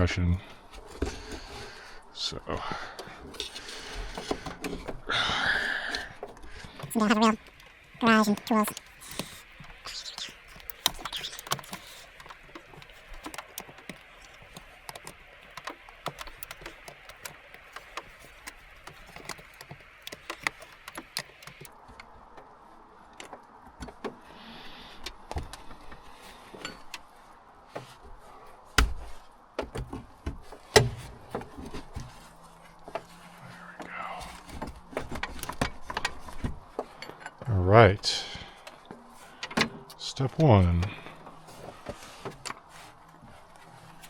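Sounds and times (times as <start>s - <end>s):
hand tools clinking: 5.9s - 21.7s.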